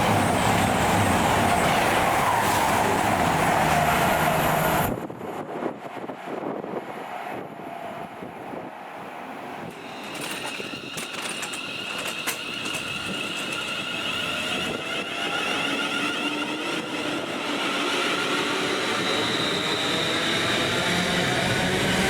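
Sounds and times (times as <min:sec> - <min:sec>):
train high-pitched whine: 0:00.0 - 0:05.1, 0:09.6 - 0:22.0
train low tones rising: 0:00.0 - 0:06.9.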